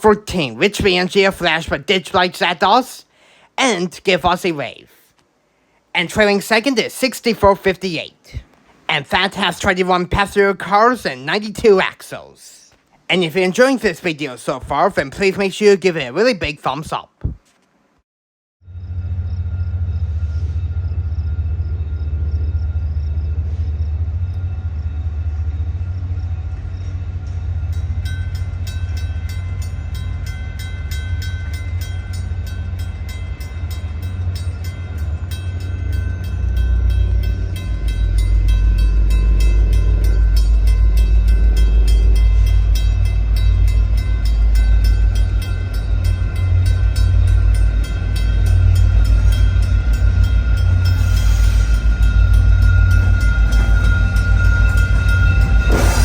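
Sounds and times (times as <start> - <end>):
passenger train rumbling past: 0.0 - 5.1, 6.0 - 16.2, 18.7 - 56.0
high ringing tones: 26.7 - 56.0.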